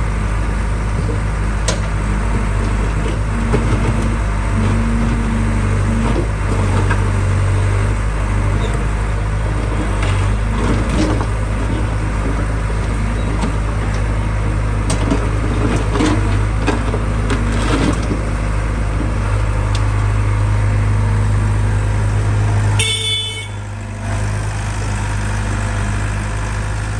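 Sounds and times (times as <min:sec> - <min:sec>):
heavy vehicle engine running: 0:00.0 - 0:26.9
horn toot: 0:22.8 - 0:23.6.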